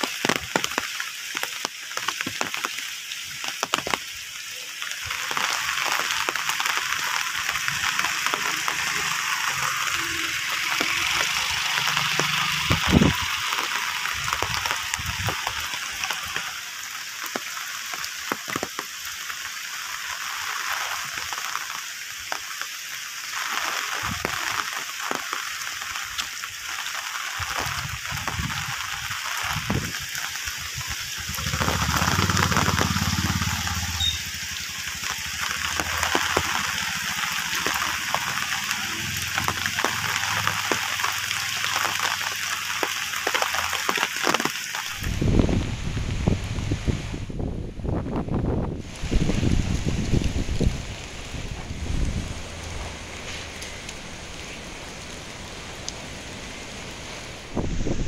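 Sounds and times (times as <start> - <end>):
raindrop ticks: 0.0 - 45.5, 48.8 - 56.0
steady rain hiss: 0.0 - 58.0
low rumble: 45.0 - 54.4.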